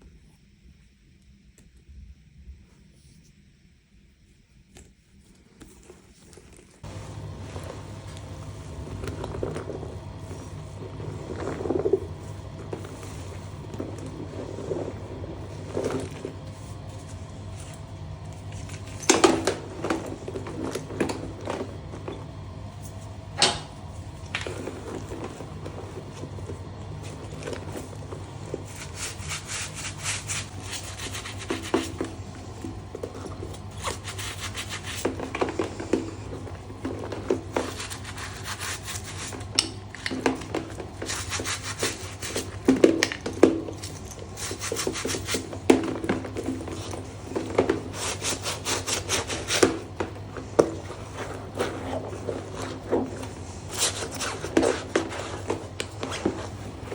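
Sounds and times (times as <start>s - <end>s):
scrubbing leather bag: 6.3s - 19.0s, 24.0s - 39.6s, 40.3s - 42.7s, 43.8s - 56.9s.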